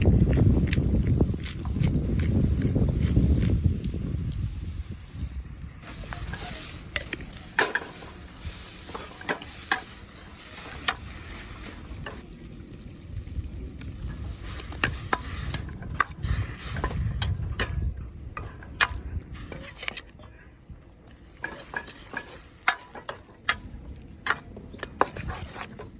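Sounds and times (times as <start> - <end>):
food sizzling in a wok: 3.7 - 17.2, 21.4 - 23.8.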